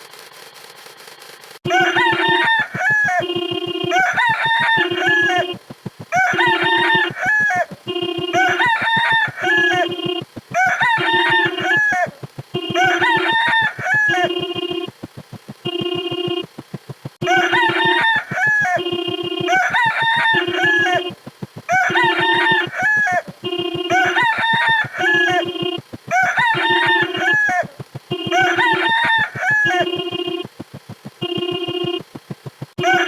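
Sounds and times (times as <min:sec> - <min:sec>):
short steady tones: 0:01.6 - 0:33.0
rooster crowing: 0:01.7 - 0:14.8, 0:17.2 - 0:30.2, 0:32.8 - 0:33.0.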